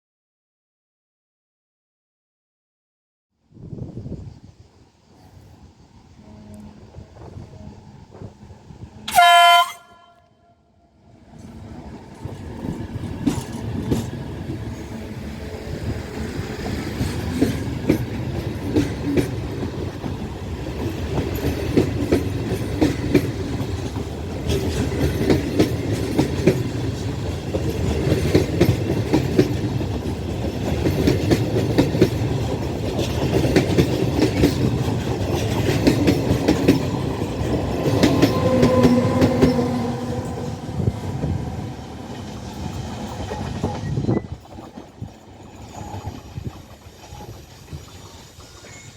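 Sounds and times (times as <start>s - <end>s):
train wheels clattering on rails: 11.4s - 48.9s.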